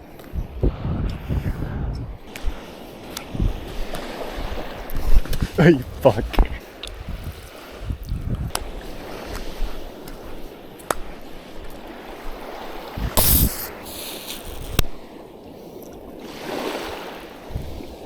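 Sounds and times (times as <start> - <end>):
water flowing and lapping: 0.0 - 18.0
brief rush of noise: 13.2 - 14.8.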